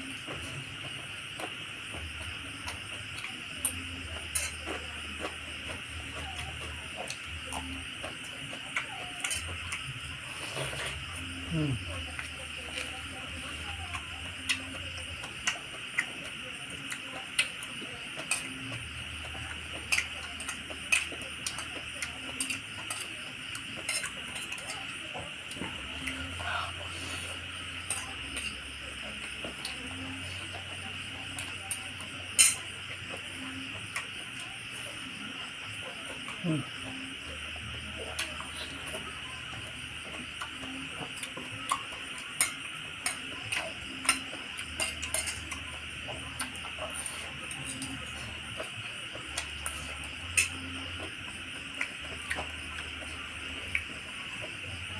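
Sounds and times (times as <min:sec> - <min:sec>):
utensils clicking on a dish: 0:05.6 - 0:09.9, 0:13.7 - 0:26.5, 0:27.6 - 0:34.4, 0:39.5 - 0:51.0.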